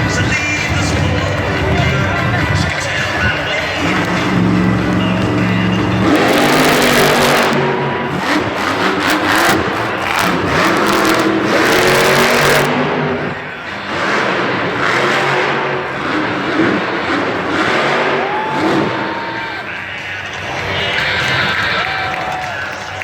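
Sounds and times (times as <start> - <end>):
truck engine revving: 0.0 - 23.0.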